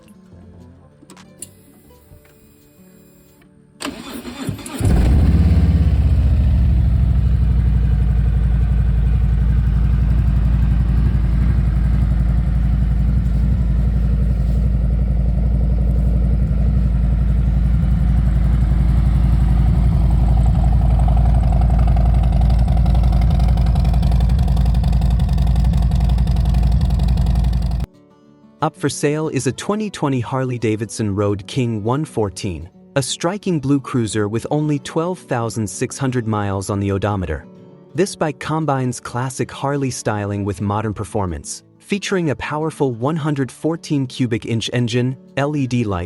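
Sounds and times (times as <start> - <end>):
motorcycle engine cranking: 3.8 - 27.9
motorcycle engine idling: 3.9 - 27.9.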